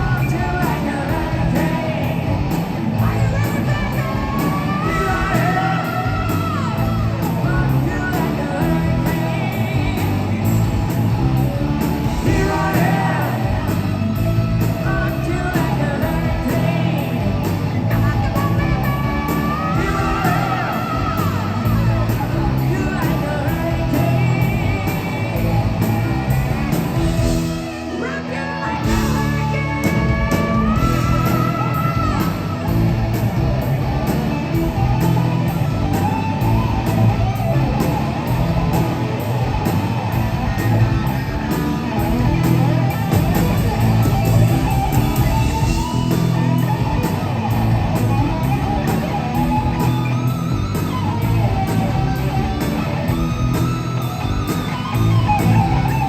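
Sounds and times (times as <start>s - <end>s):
person singing: 0.0s - 10.8s, 12.0s - 33.2s
bass guitar: 0.0s - 56.0s
drums: 0.0s - 56.0s
electric guitars: 0.0s - 56.0s
hard rock band playing live: 0.0s - 56.0s.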